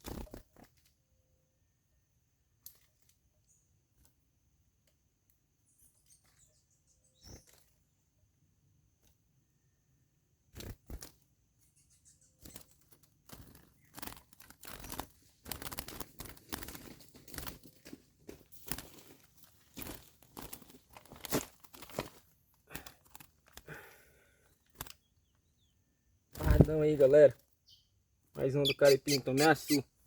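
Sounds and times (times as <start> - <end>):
rustling and scraping: 12.4 - 23.6.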